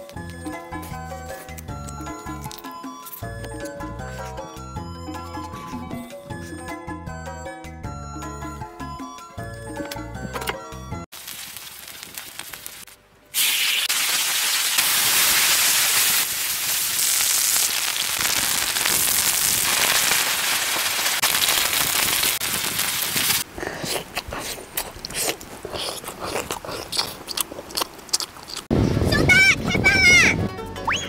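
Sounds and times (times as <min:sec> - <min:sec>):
fish sizzling in hot oil: 0:11.1 - 0:23.4
crunchy biting and chewing: 0:23.2 - 0:28.7.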